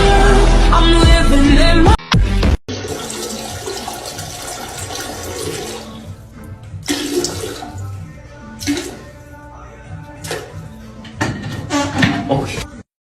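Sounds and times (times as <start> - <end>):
water rushing: 2.7 - 6.1, 6.9 - 7.9.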